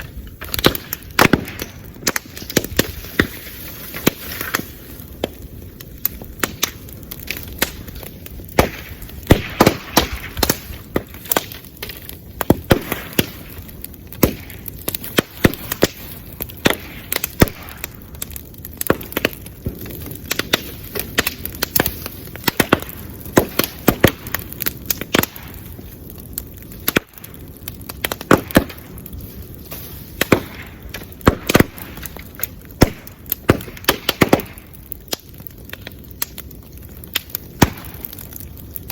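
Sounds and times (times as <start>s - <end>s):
bamboo fire crackling and popping: 0.0s - 38.9s
hiss of flame: 28.8s - 30.8s.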